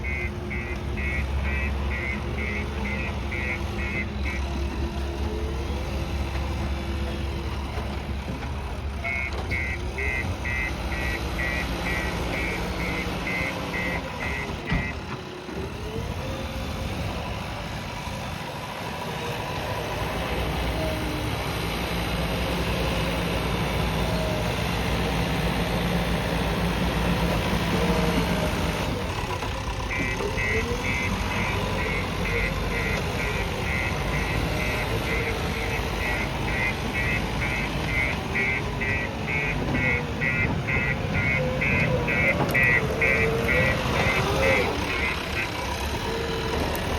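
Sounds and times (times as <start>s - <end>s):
reversing alarm beeping: 0.0s - 4.5s, 9.0s - 15.0s, 29.9s - 46.9s
diesel engine running: 0.0s - 46.9s.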